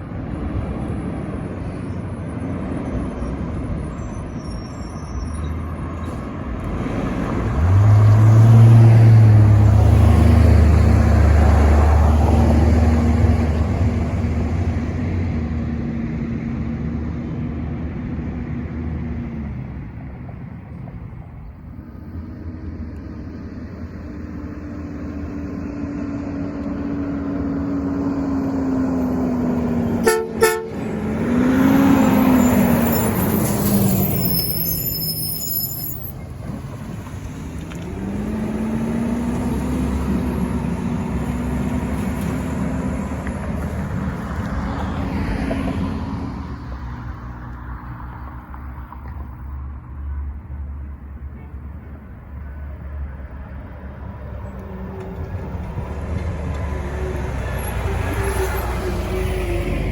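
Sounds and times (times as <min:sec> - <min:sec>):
truck engine drone: 0:00.0 - 0:59.9
garbage truck engine passing: 0:05.9 - 0:49.5, 0:52.1 - 0:59.9
truck horn toots: 0:30.0 - 0:31.1.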